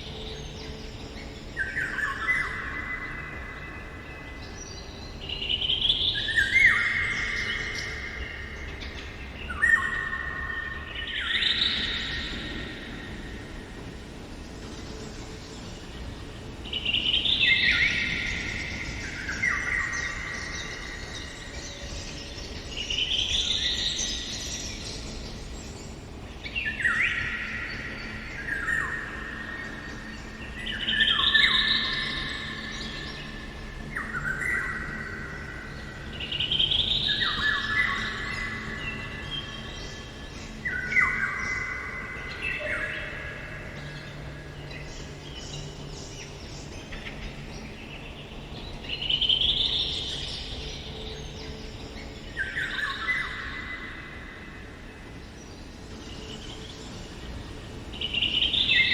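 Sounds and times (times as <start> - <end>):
songbird singing: 0.0 - 58.9.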